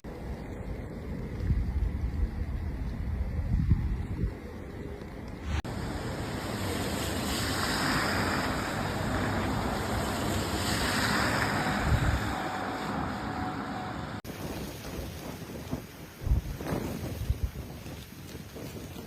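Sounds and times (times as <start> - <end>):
outdoor rushing noise: 5.3 - 17.5.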